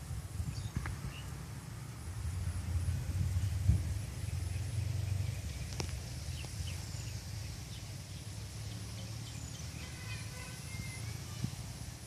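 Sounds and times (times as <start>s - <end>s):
low rumble: 0.0s - 8.3s.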